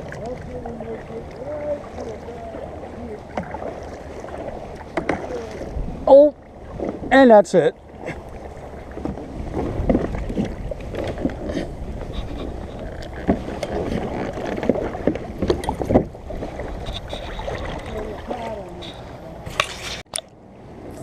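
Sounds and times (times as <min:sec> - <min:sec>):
water splashing against kayak: 0:00.0 - 0:21.0.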